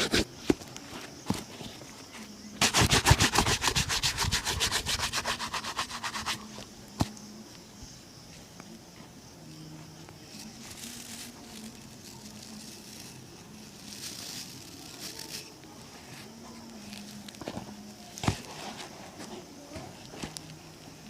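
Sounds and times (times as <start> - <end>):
shoe-shine rubbing on leather: 2.6 - 6.6
low background hiss: 5.8 - 18.2.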